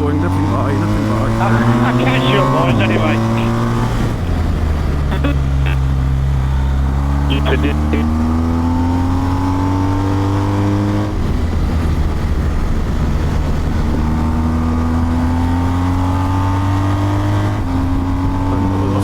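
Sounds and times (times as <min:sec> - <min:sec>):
wind and road noise: 0:08.7 - 0:19.0.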